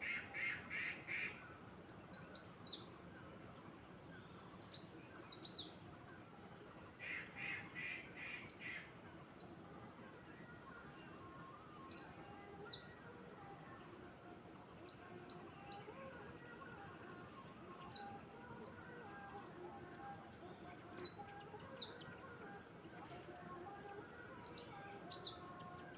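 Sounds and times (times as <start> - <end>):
lower evenly spaced bird call: 0.0 - 3.1, 4.2 - 5.8, 7.0 - 9.7, 11.6 - 13.1, 14.6 - 25.9.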